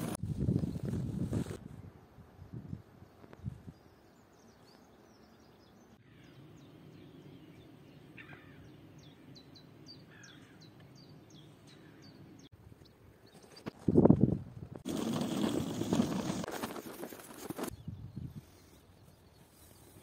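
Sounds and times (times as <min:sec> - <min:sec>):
small birds chirping: 0:02.6 - 0:13.7.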